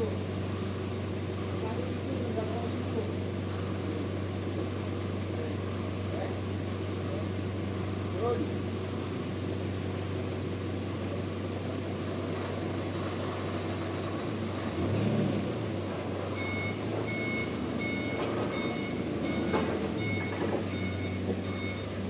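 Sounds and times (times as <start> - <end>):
vehicle reversing alarm beeps: 16.2 - 22.0.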